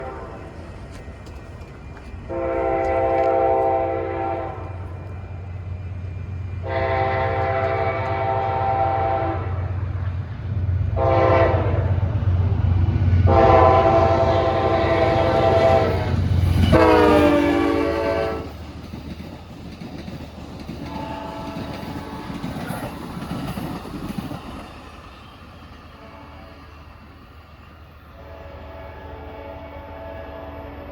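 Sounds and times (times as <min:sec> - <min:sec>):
locomotive horn blasts: 0:00.0 - 0:00.6, 0:02.3 - 0:05.0, 0:06.6 - 0:09.7, 0:11.0 - 0:12.1, 0:13.2 - 0:18.5, 0:20.9 - 0:22.5, 0:26.0 - 0:26.7, 0:28.2 - 0:30.9
train cars rumbling and clattering: 0:00.0 - 0:28.8.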